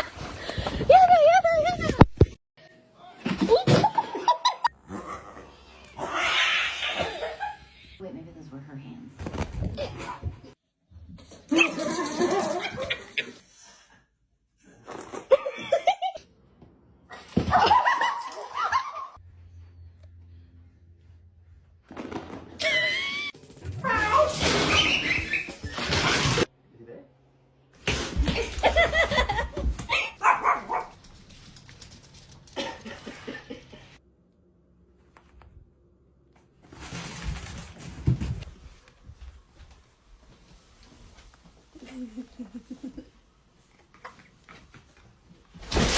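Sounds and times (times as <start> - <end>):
dog barking: 30.2 - 31.0.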